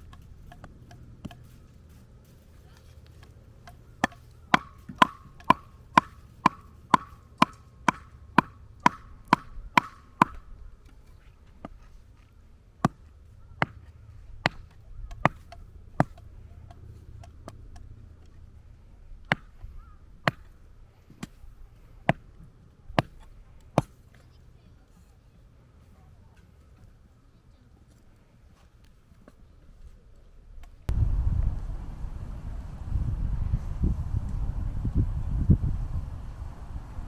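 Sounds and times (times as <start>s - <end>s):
blade striking wood: 0.0s - 1.7s, 3.1s - 11.0s, 12.8s - 17.9s, 19.2s - 21.4s, 22.0s - 24.1s.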